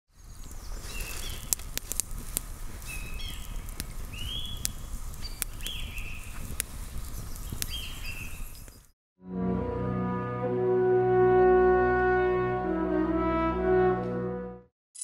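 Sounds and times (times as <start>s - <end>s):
sharp crackles and clicks: 0.1s - 8.9s
birds calling: 0.2s - 1.6s, 2.8s - 6.5s, 7.1s - 8.9s.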